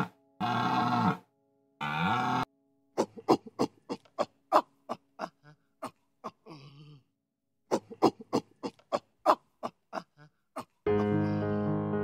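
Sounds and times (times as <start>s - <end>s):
animal calling in sharp calls: 0.0s - 1.2s.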